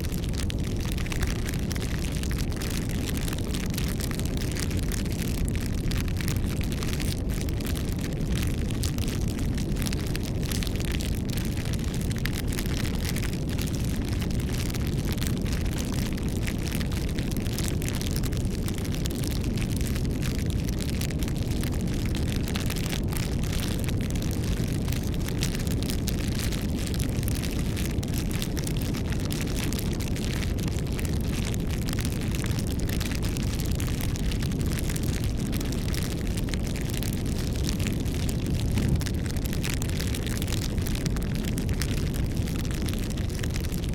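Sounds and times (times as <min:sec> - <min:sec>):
campfire flames rushing: 0:00.0 - 0:43.9
fire crackles and pops: 0:00.0 - 0:43.9.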